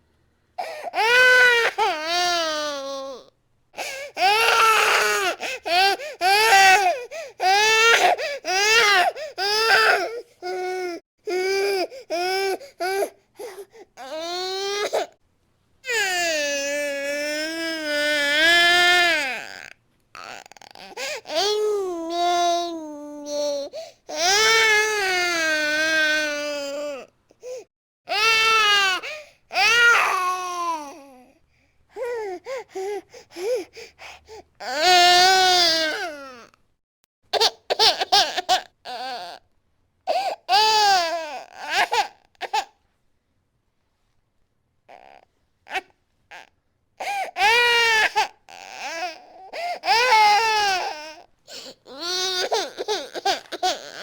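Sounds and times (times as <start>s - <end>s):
baby crying: 0.6s - 15.1s, 15.9s - 27.1s, 28.1s - 31.2s, 34.6s - 36.5s, 40.1s - 42.8s, 44.9s - 54.0s.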